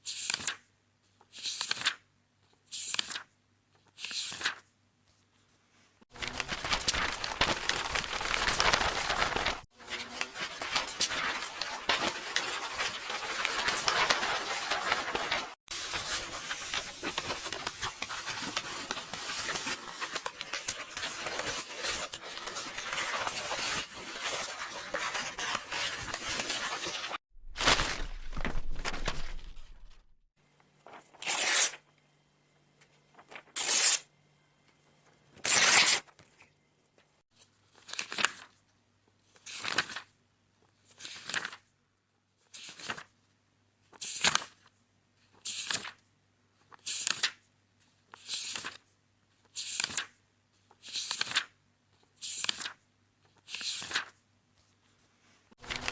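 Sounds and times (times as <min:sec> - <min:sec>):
book pages turning: 0:00.1 - 0:00.6, 0:01.2 - 0:30.1, 0:30.7 - 0:31.8, 0:32.9 - 0:34.0, 0:37.4 - 0:38.6, 0:39.3 - 0:40.1, 0:40.7 - 0:41.7, 0:42.5 - 0:43.2, 0:43.9 - 0:44.7, 0:45.3 - 0:46.0, 0:46.6 - 0:48.8, 0:49.4 - 0:55.9
paper tearing and crackling: 0:06.1 - 0:30.0, 0:30.9 - 0:31.8, 0:33.2 - 0:34.0, 0:35.4 - 0:36.1, 0:55.6 - 0:55.9.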